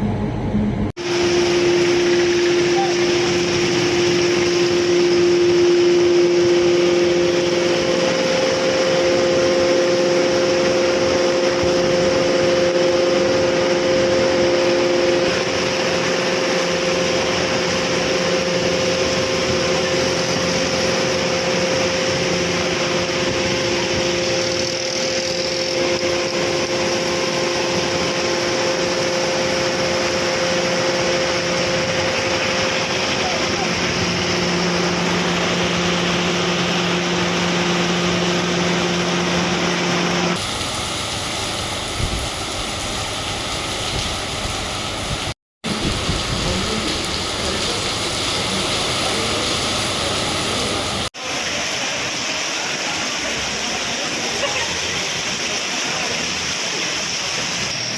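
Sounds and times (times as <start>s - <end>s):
motor hum: 1.0s - 51.1s
loud even hiss: 40.3s - 53.2s.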